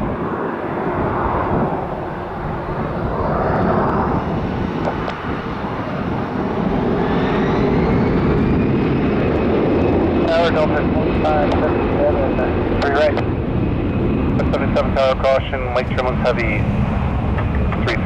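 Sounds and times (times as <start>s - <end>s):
jet engine rumble: 0.0s - 18.0s.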